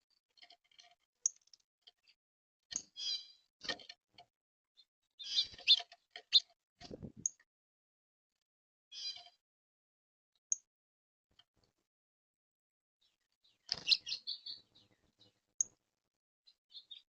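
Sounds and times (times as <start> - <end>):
birds chirping and clicking: 0.4 - 4.3, 5.2 - 7.4, 9.0 - 9.4, 13.5 - 15.8, 16.5 - 17.0.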